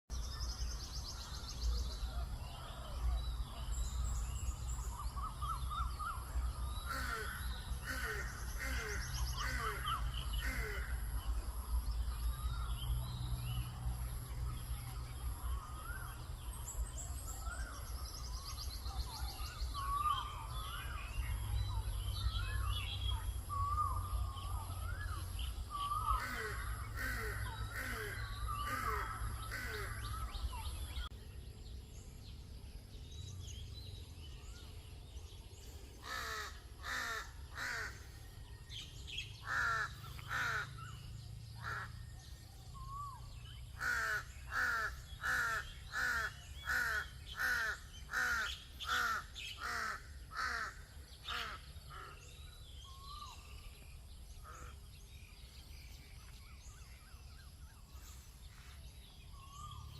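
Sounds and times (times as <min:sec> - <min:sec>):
crow cawing: 0:06.9 - 0:11.0, 0:25.9 - 0:30.2, 0:36.0 - 0:38.0, 0:39.4 - 0:40.9, 0:41.6 - 0:41.9, 0:43.8 - 0:52.2.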